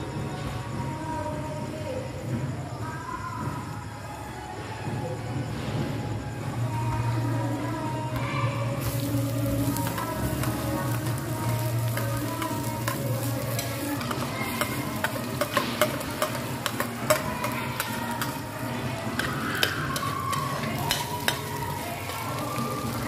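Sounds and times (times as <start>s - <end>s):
onion and garlic sizzling: 6.8s - 23.0s
metal spoon scraping and clinking: 11.8s - 21.6s.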